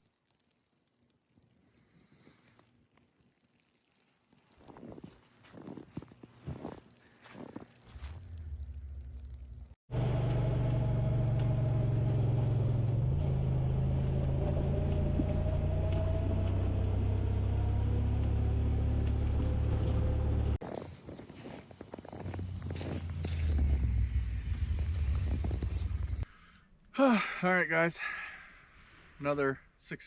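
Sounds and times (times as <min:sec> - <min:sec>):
vehicle engine rumbling: 0:07.5 - 0:26.3.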